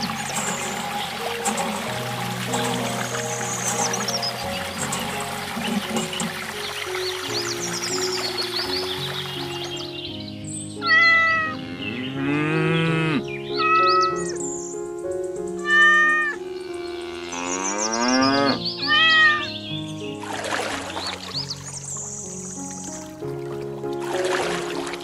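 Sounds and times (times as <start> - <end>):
background music: 0.0 - 25.0
cat-like meows: 10.8 - 11.6, 13.6 - 14.3, 15.6 - 16.4, 18.8 - 19.5.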